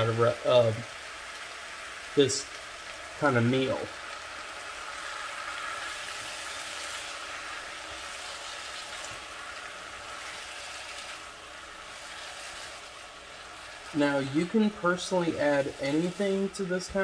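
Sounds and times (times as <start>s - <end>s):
stir-fry sizzling in a frying pan: 0.0s - 17.0s
spatula stirring: 4.7s - 16.8s.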